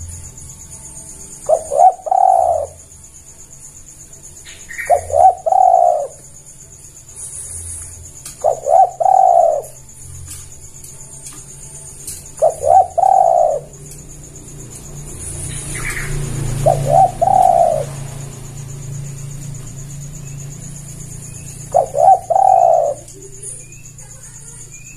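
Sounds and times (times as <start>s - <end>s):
dove cooing: 1.4s - 3.0s, 4.5s - 6.4s, 7.9s - 10.4s, 12.0s - 14.0s, 15.0s - 24.8s.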